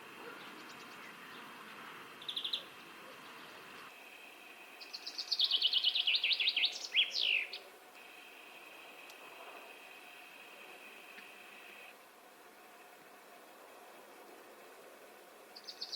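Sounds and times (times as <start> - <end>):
chaffinch song: 0.0 - 15.9
greenfinch trill: 2.2 - 2.7, 4.7 - 8.3, 15.6 - 15.9.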